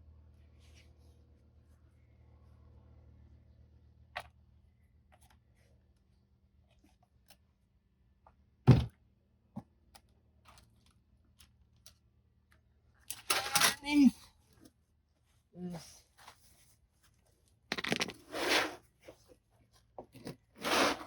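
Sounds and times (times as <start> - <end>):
objects clicking and knocking: 17.7 - 18.3.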